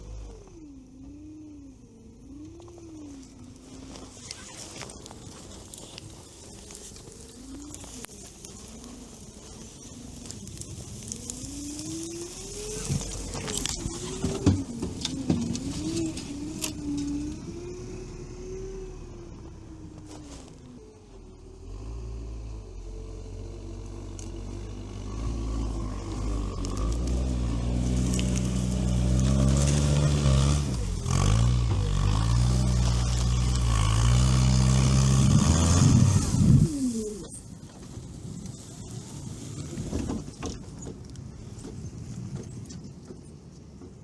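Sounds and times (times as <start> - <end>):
atv engine running: 0.0 - 43.8.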